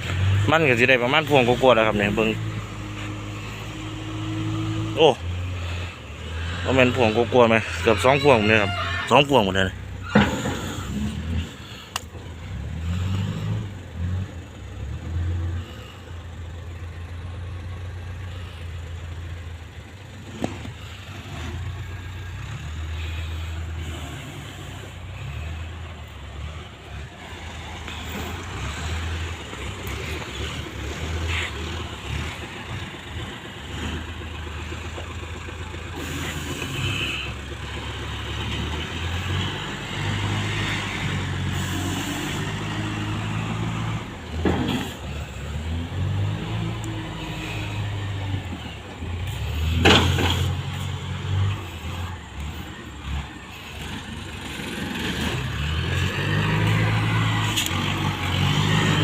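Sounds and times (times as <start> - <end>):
loader diesel engine revving: 0.0 - 59.0.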